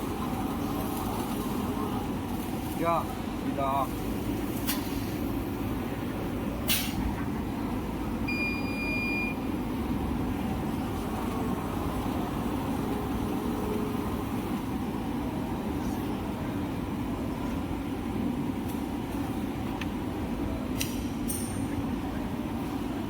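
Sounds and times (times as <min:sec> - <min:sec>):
short high beep: 0:08.3 - 0:09.4.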